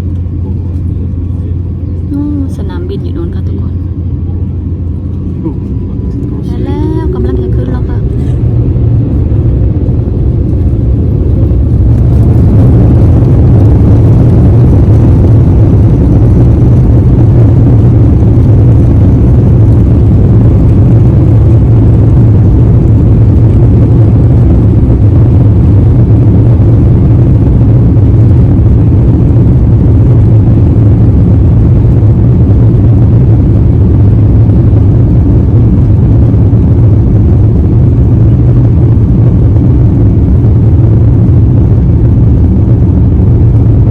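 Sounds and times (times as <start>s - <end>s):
jet engines rumbling: 0.0s - 43.9s.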